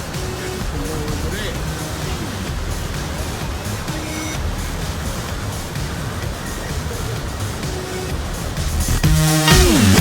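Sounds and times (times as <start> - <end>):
waterfall roaring: 0.0 - 10.0.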